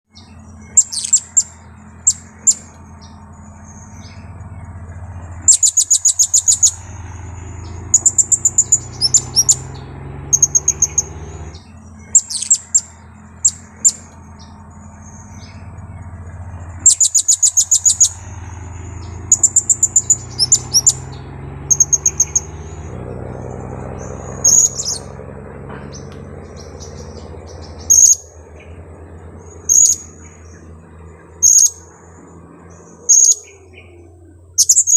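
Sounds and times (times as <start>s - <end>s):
steady low hum: 0.1s - 34.9s
shrill parrot chirps: 0.7s - 2.7s, 5.5s - 6.9s, 7.9s - 9.7s, 12.1s - 14.0s, 16.8s - 18.2s, 29.7s - 30.2s, 33.1s - 33.8s, 34.6s - 34.9s.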